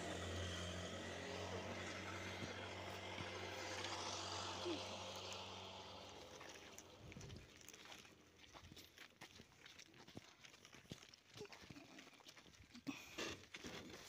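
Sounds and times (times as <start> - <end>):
vehicle engine humming: 0.0 - 7.6.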